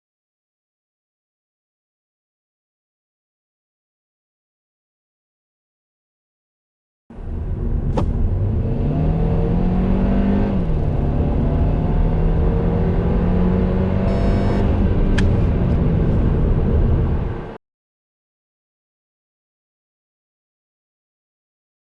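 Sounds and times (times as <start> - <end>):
car engine accelerating: 7.1 - 17.6.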